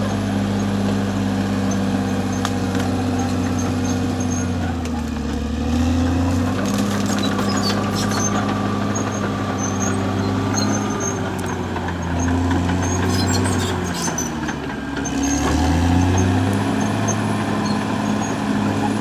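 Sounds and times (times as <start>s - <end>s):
bulldozer diesel engine running: 0.0s - 19.0s
machine clicks and squeaks: 0.0s - 19.0s.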